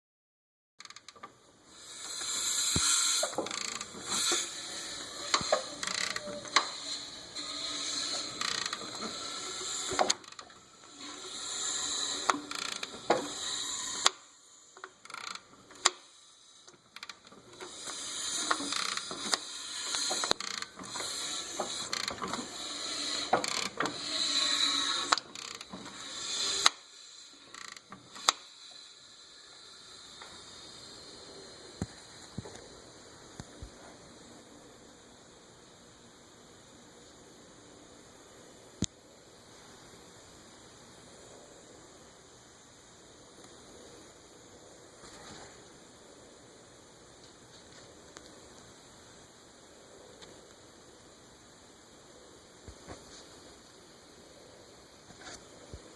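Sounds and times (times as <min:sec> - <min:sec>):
sharp clicks: 0:12.1 - 0:14.2, 0:16.7 - 0:22.4, 0:24.9 - 0:26.8.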